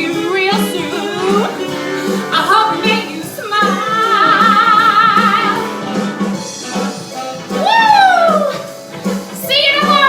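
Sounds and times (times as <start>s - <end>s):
woman singing with vibrato: 0.0s - 6.0s
upbeat backing track: 0.0s - 10.0s.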